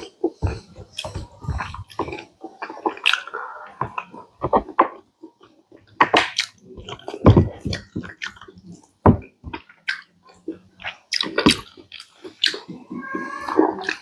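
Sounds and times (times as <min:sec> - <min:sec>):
chewing with wet smacking: 0:00.0 - 0:14.0
mouth clicks: 0:09.5 - 0:14.0.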